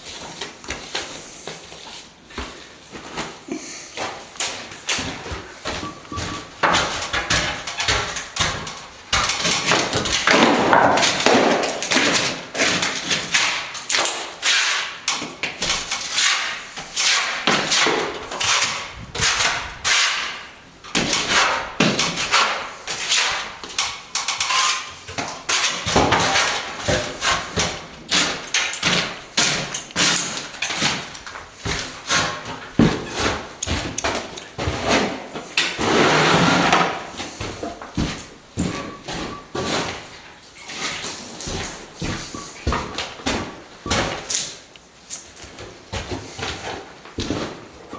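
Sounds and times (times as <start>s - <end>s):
trowel scraping plaster: 6.7s - 33.5s, 34.6s - 37.4s.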